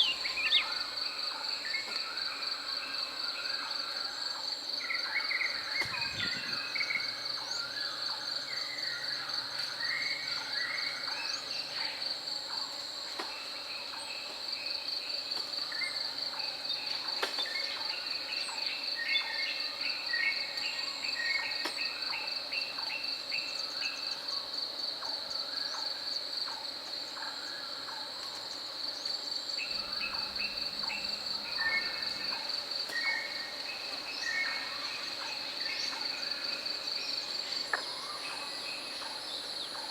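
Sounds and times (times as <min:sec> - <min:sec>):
birds singing and calling: 0:00.0 - 0:04.0, 0:04.8 - 0:12.0, 0:29.6 - 0:39.9
insect trill: 0:00.0 - 0:39.9.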